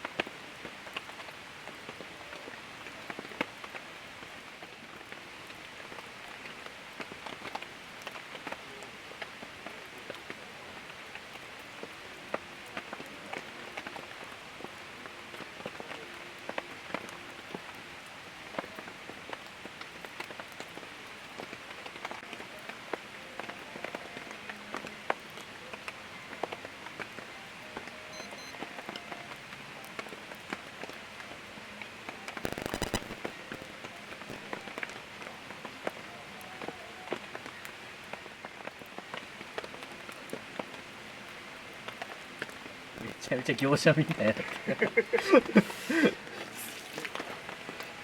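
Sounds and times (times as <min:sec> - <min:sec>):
heavy rain: 0:00.0 - 0:48.0
raindrops ticking close by: 0:00.0 - 0:48.0
short noisy burst: 0:32.4 - 0:33.2.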